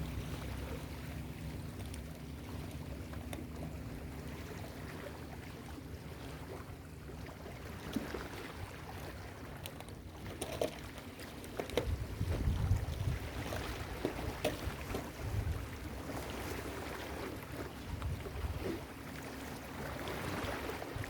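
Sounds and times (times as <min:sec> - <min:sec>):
ocean surf on beach: 0:00.0 - 0:01.0
wind on microphone: 0:11.8 - 0:15.9, 0:17.8 - 0:18.8.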